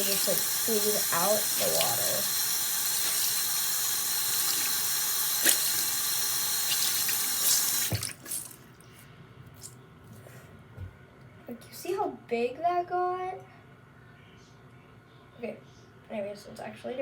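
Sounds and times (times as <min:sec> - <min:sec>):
water running from sink tap: 0:00.0 - 0:08.6.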